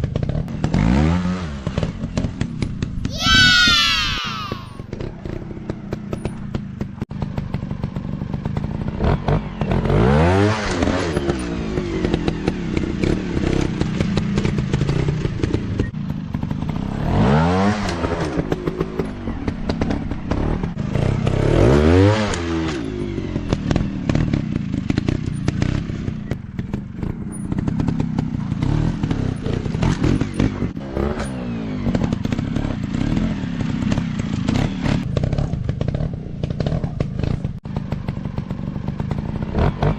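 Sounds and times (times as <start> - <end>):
dirt bike engines revving: 3.1 - 6.6.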